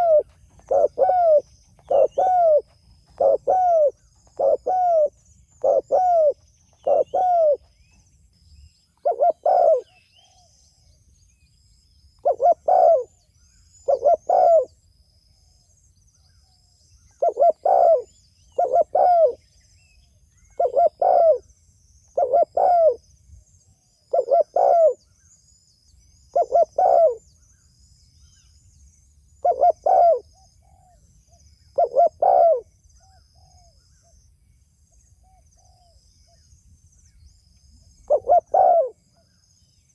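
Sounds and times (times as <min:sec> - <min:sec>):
dove cooing: 0:00.0 - 0:07.7, 0:09.0 - 0:10.5, 0:12.2 - 0:13.2, 0:13.8 - 0:14.8, 0:17.2 - 0:19.4, 0:20.6 - 0:21.4, 0:22.2 - 0:23.0, 0:24.1 - 0:25.0, 0:26.4 - 0:27.2, 0:29.4 - 0:31.0, 0:31.8 - 0:32.7, 0:38.1 - 0:39.0
small birds chirping faintly: 0:00.0 - 0:39.9.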